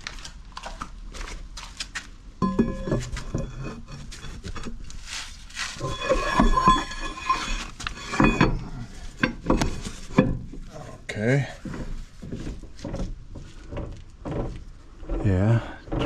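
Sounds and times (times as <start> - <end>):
metal knocks and clinks: 2.4 - 4.0, 5.8 - 10.6
metal parts clanking and scraping: 2.4 - 16.0.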